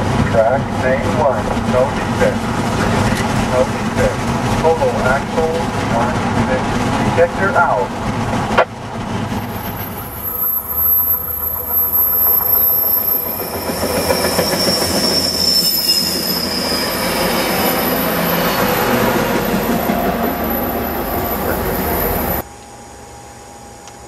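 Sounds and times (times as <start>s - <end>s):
train rolling on rails: 0.0s - 22.5s
high-pitched wheel squeal: 9.4s - 22.4s.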